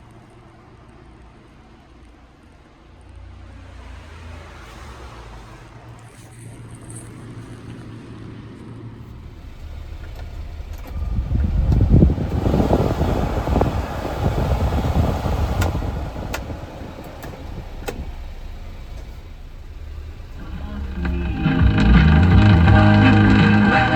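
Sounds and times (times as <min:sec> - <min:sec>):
small truck engine running: 0:09.0 - 0:23.9.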